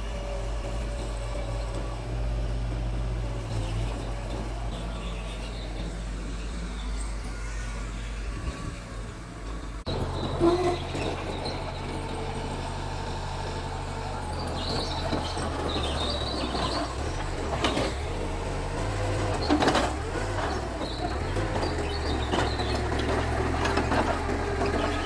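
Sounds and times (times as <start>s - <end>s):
bulldozer diesel engine: 0.0s - 25.0s.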